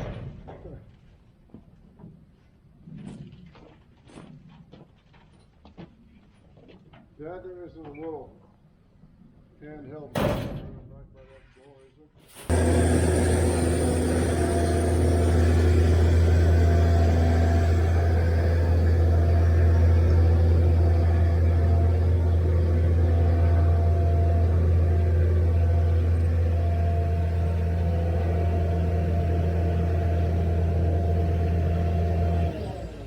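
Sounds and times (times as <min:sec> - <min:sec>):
large engine humming: 0:12.5 - 0:33.0.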